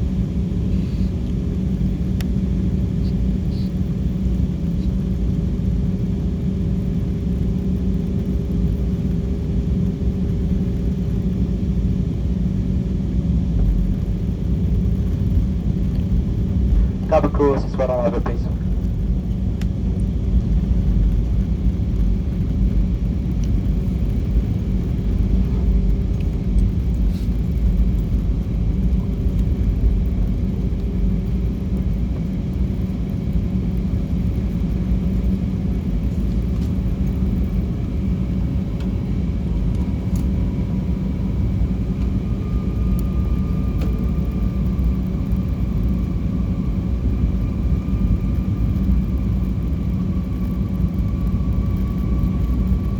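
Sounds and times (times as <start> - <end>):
high engine whine: 13.6 - 52.9
jet engines rumbling: 14.9 - 26.0.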